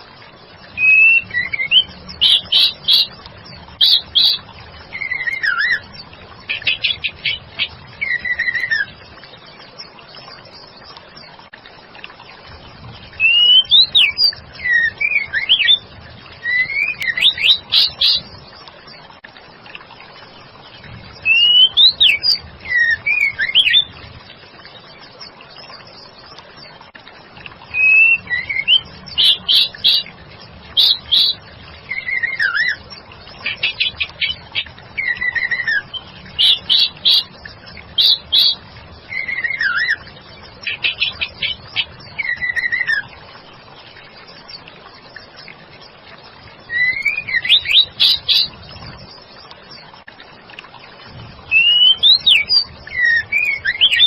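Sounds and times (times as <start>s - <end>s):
bird whistles and chirps: 0.8s - 3.2s, 3.8s - 5.9s, 8.0s - 8.9s, 13.2s - 15.8s, 16.4s - 18.3s, 21.2s - 23.9s, 27.7s - 30.1s, 30.8s - 32.8s, 33.4s - 37.3s, 38.0s - 40.0s, 40.6s - 43.1s, 46.7s - 48.6s, 51.5s - 54.0s.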